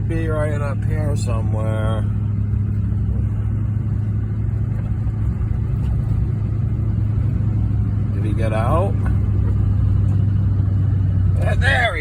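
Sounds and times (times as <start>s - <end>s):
vehicle engine and road drone: 0.0s - 12.0s.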